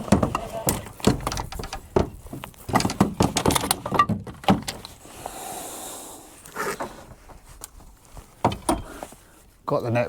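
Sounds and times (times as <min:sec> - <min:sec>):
fishing tackle knocking and clattering: 0:00.0 - 0:04.9.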